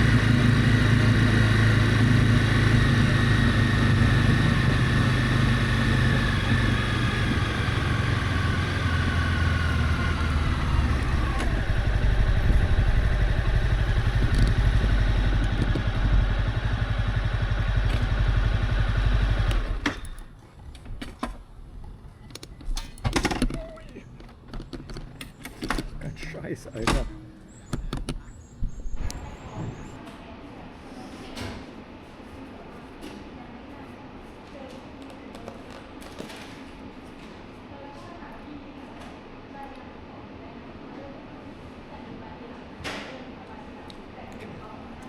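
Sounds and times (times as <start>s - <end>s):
motorcycle engine running: 0.0s - 20.3s.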